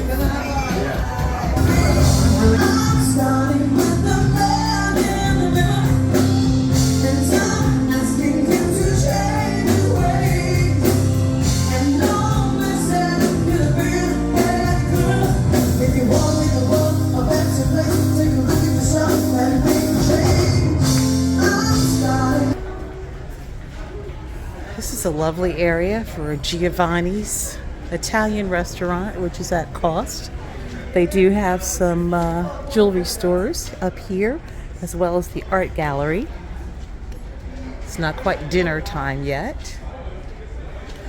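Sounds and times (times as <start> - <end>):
upbeat music with singing: 0.0 - 22.6.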